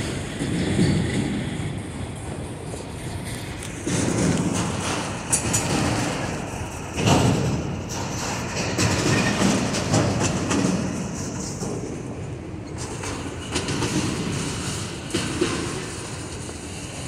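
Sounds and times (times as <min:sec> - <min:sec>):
freight train rumbling past: 0:00.0 - 0:17.0
wheels clicking on rails: 0:00.0 - 0:17.0.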